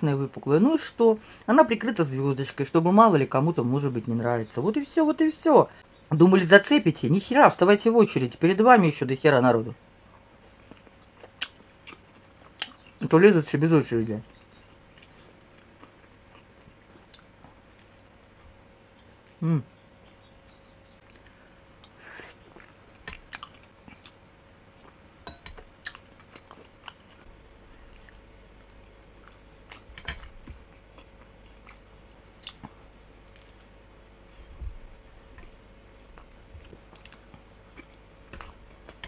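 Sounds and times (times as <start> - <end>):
person chewing bread: 9.9 - 13.1, 14.2 - 39.0
mouth clicks and smacks: 31.7 - 33.6.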